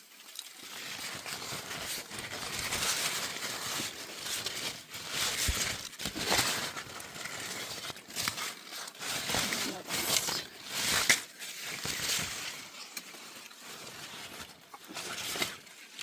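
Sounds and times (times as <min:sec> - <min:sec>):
leaves and branches rustling: 0:00.0 - 0:16.0.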